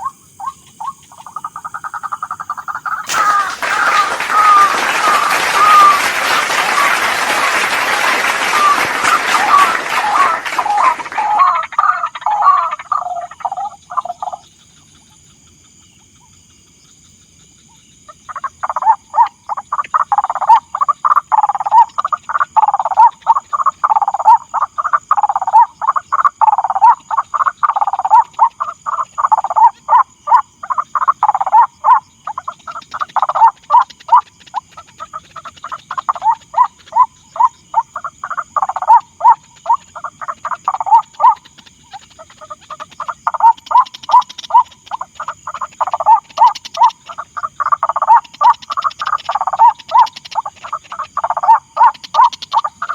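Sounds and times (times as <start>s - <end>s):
bird croaking calls: 0.0s - 14.4s, 34.8s - 52.9s
loud hiss: 2.9s - 9.0s.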